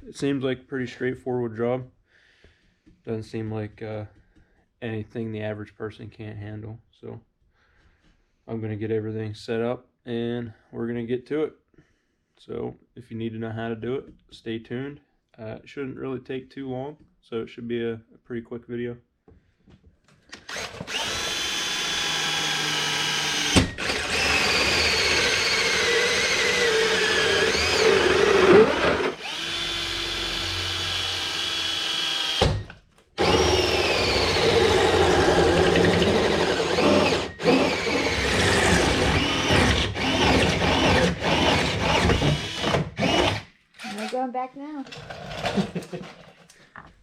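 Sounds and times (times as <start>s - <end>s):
power drill motor whine: 20.4s - 44.0s.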